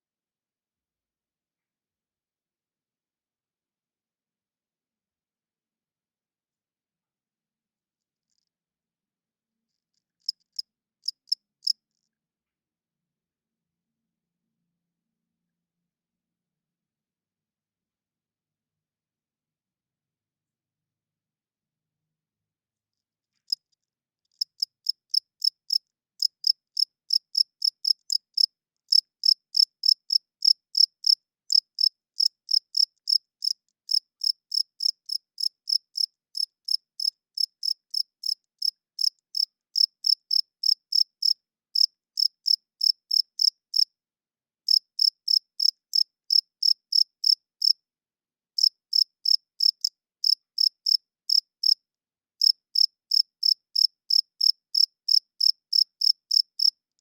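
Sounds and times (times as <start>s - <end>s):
crickets chirping: 44.7s - 47.4s, 52.4s - 56.7s.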